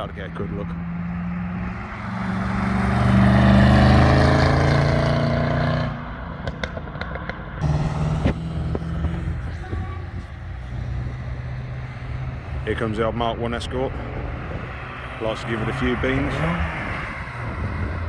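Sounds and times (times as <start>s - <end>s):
race car engine accelerating: 0.0s - 6.6s, 7.6s - 18.0s
engine running steadily: 7.6s - 16.7s.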